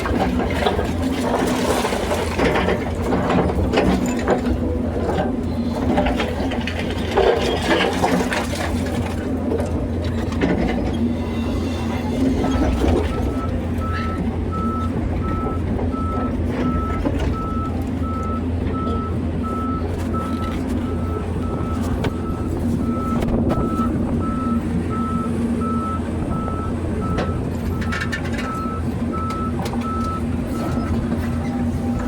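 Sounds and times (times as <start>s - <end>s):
excavator diesel engine running: 0.0s - 32.0s
backup alarm beeping: 11.9s - 30.8s.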